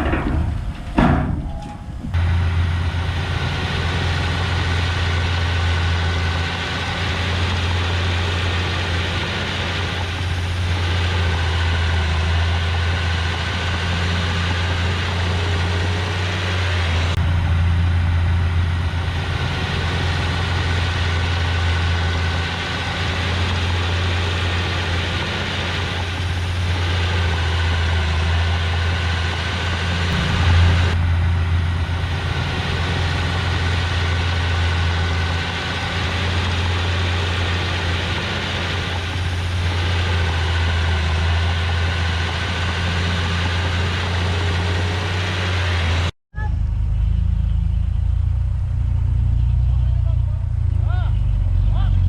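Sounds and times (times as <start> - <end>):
heavy diesel engine running: 0.0 - 52.0.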